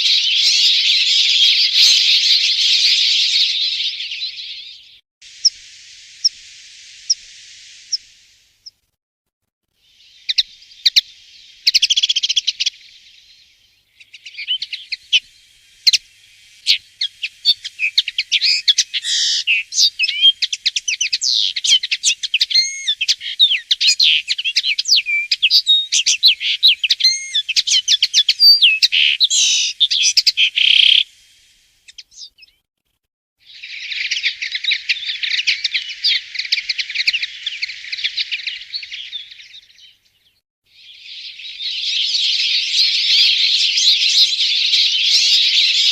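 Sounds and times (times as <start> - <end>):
linnet twittering song: 0.0 - 8.8, 9.8 - 32.6, 33.4 - 45.9.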